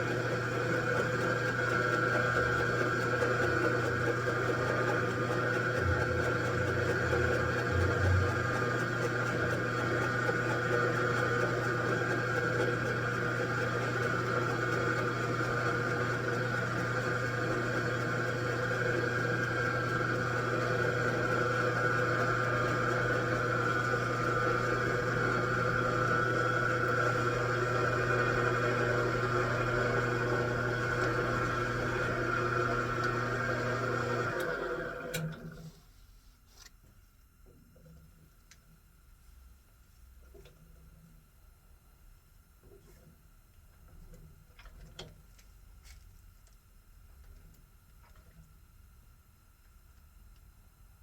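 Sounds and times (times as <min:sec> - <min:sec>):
machine tool motor hum and whine: 0:00.0 - 0:35.6.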